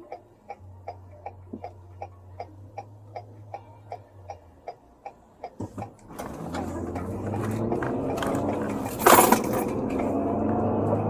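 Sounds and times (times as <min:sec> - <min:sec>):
turn signal clicking: 0:00.0 - 0:08.8
car cabin hum: 0:00.0 - 0:11.0.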